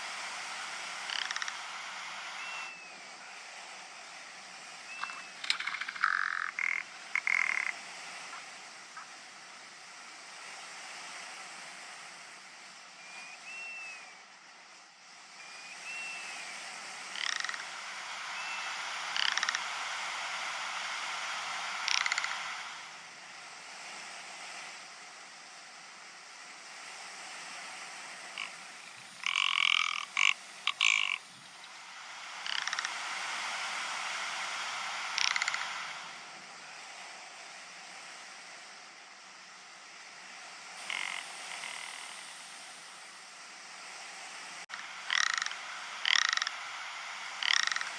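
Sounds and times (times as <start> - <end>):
steady hiss: 0.0 - 47.9
bird giving dry rattling calls: 1.1 - 1.6, 5.0 - 7.8, 29.2 - 31.7, 32.4 - 33.0, 35.2 - 35.8, 40.8 - 42.4, 45.1 - 46.6, 47.4 - 47.9.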